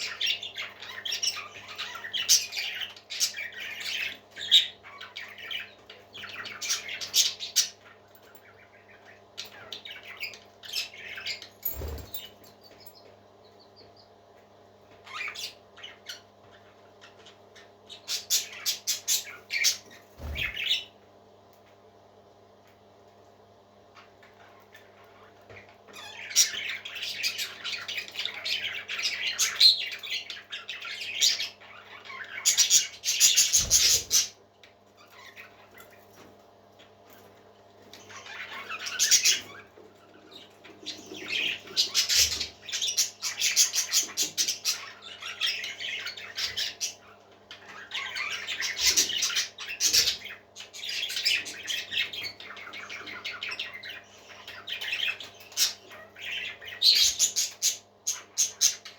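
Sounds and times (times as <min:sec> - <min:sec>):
parrot chicks raspy calls: 0:00.0 - 0:21.0, 0:23.8 - 0:36.2.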